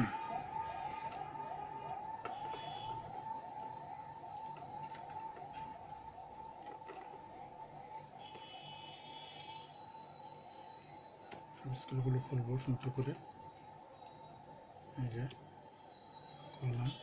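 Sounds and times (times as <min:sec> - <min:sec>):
siren-like electronic wail: 0:00.0 - 0:17.0.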